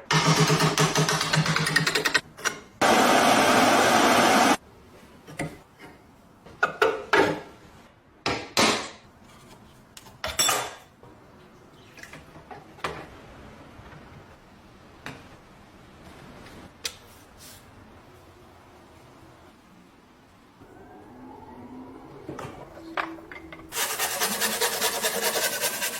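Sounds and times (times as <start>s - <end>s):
low hum: 20.6s - 23.8s.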